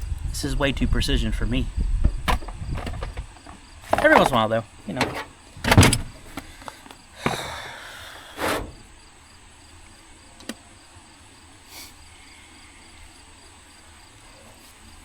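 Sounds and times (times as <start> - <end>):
insects chirping: 0.0 - 15.0
clunk: 2.0 - 7.6, 8.4 - 9.0
hiss: 7.2 - 9.0, 11.6 - 13.2.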